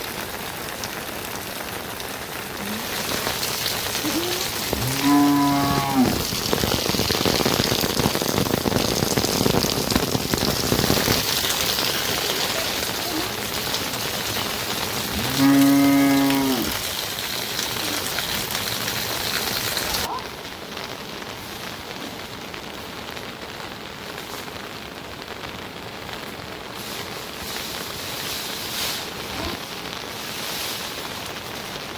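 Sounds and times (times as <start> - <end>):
steady rain: 0.0 - 31.9
cow mooing: 4.1 - 6.2, 15.1 - 16.8.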